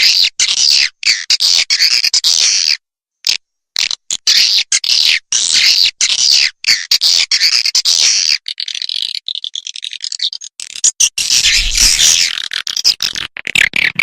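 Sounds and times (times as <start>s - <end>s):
recorded swiftlet chirping: 4.2s - 13.0s.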